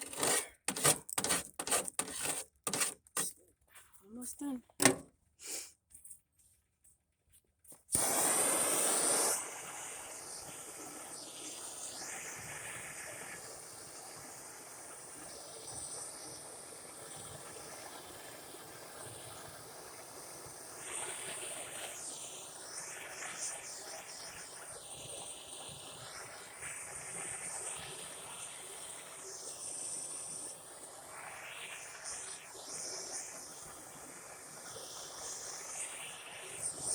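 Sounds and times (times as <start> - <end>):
gas torch flame hissing: 7.9 - 17.8, 30.6 - 36.9.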